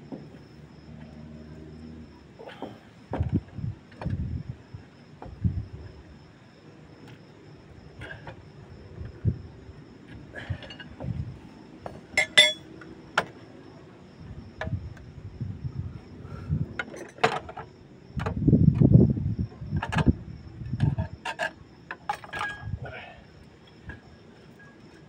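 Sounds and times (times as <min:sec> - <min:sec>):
metal tools clinking on brake parts: 0:12.2 - 0:12.7.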